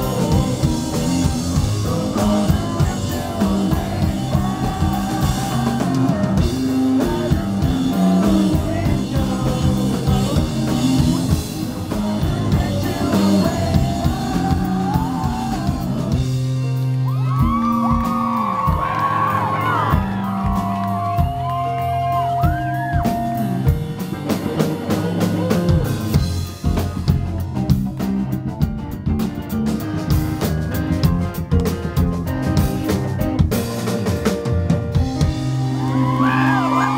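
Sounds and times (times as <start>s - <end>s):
person singing: 0.0s - 16.7s, 24.4s - 26.4s
live rock band: 0.0s - 36.9s.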